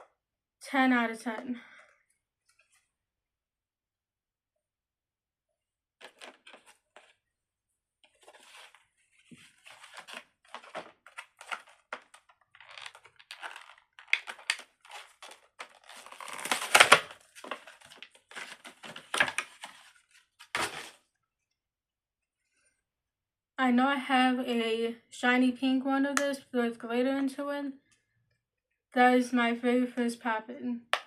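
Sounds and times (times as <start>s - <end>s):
fidget toys crinkling and clicking: 10.6s - 16.1s.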